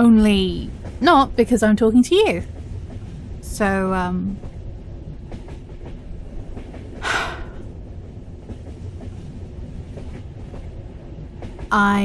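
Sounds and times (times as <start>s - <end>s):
train carriage rumble: 0.0s - 12.0s
short breathy hiss: 7.0s - 7.6s.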